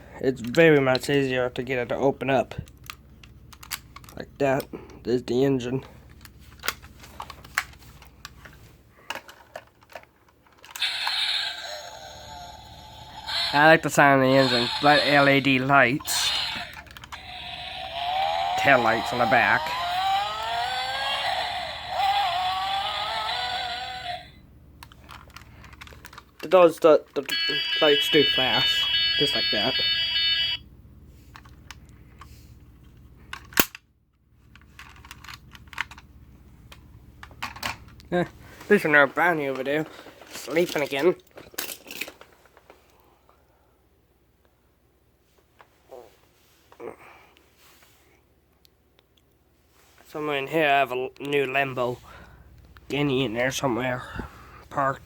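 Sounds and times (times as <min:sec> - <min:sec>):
toy electronic engine sound: 0:10.7 - 0:24.4, 0:27.3 - 0:30.6.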